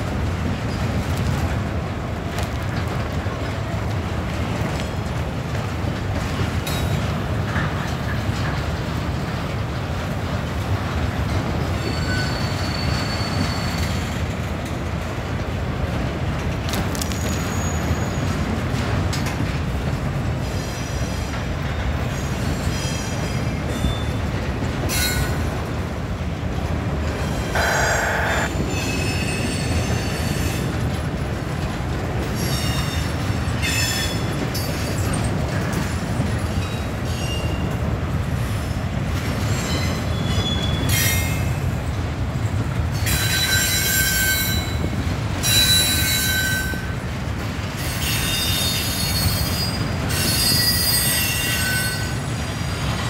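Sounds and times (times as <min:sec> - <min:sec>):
train wheels rumbling on rails: 0:00.0 - 0:53.0
high-pitched wheel squeals: 0:11.8 - 0:14.0, 0:27.6 - 0:28.5.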